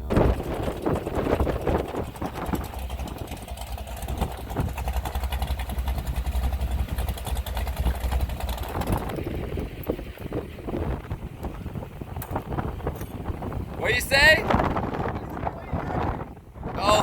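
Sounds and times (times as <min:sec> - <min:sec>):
boat engine idling: 0:00.0 - 0:17.0.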